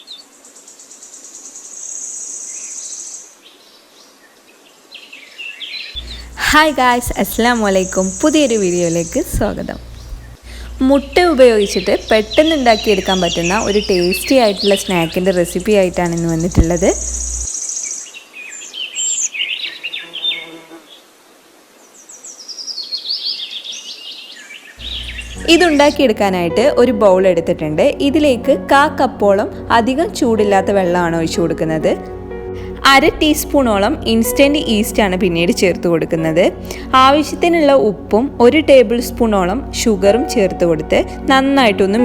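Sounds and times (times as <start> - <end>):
small birds twittering: 0.0 - 21.1, 21.8 - 26.4
high pulsing insect trill: 0.3 - 3.4, 6.0 - 18.1, 24.8 - 27.0.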